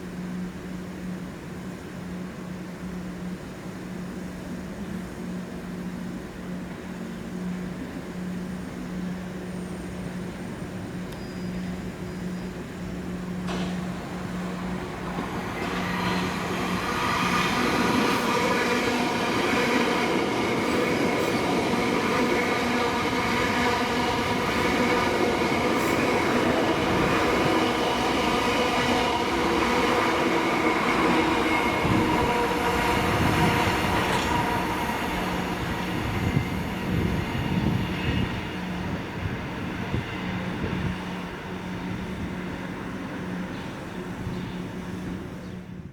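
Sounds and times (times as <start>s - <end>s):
electric train passing: 0.0s - 45.9s
wheels clicking over rail joints: 13.4s - 16.9s, 34.0s - 34.7s.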